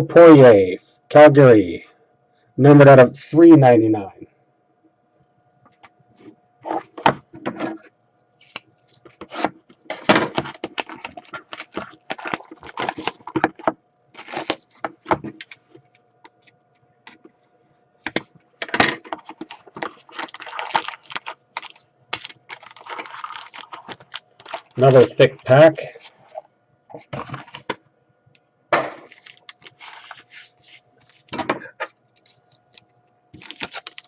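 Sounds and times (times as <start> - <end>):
card wrappers crinkling: 8.4 - 15.7, 19.0 - 25.6, 29.0 - 34.0.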